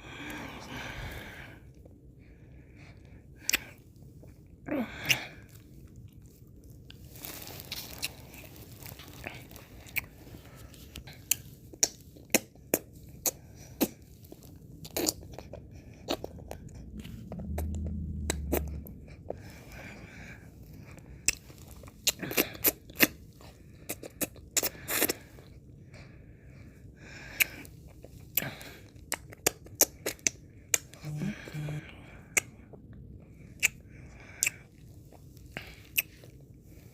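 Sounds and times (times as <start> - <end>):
mouth licking and smacking: 11.0 - 19.4, 21.2 - 25.5, 27.3 - 31.0, 32.3 - 33.8
low rumble: 14.4 - 22.1.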